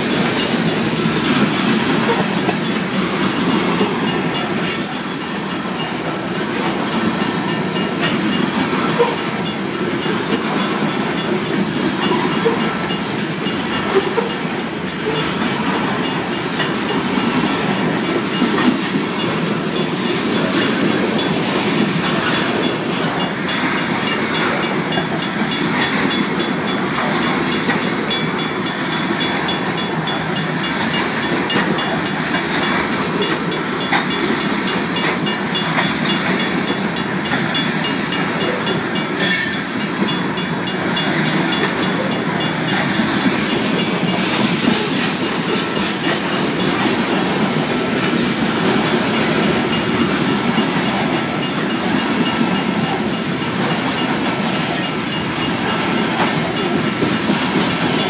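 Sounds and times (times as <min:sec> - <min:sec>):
crossing bell ringing: 0:00.0 - 0:58.0
rumble of train wheels on rail: 0:00.0 - 0:58.0
wheels clicking over rail joints: 0:00.1 - 0:58.0.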